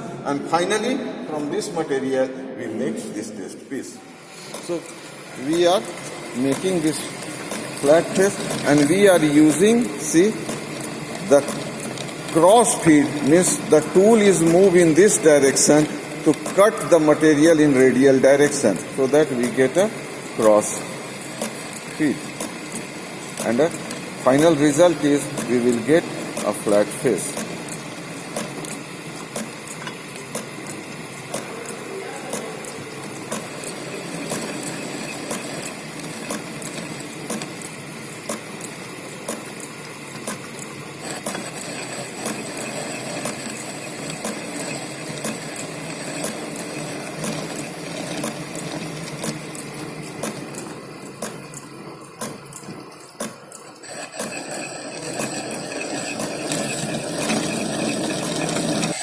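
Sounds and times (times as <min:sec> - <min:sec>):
lathe cutting metal: 0:04.7 - 0:31.8, 0:32.7 - 0:38.0, 0:40.9 - 0:51.1, 0:53.8 - 0:59.0.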